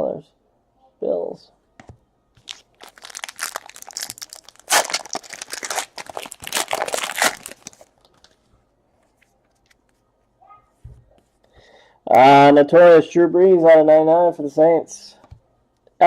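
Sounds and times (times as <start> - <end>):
wrapper tearing and crinkling: 2.4 - 8.4.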